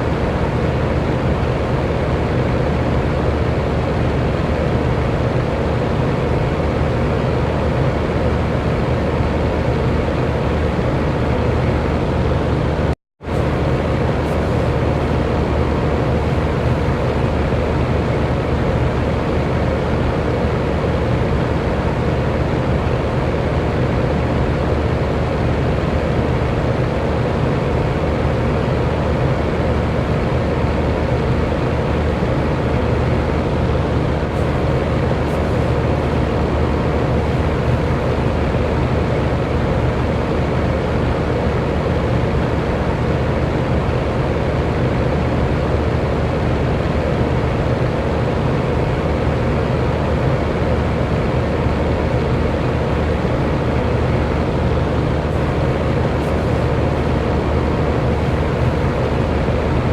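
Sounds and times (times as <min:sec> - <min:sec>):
faint motor hum: 0:00.0 - 0:59.9
electric fan whoosh: 0:29.9 - 0:40.8, 0:48.2 - 0:59.9.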